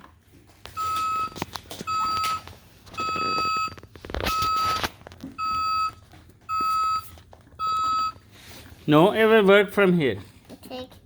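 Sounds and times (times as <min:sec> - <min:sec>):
toy electronic beeper beeping: 0:05.4 - 0:08.2.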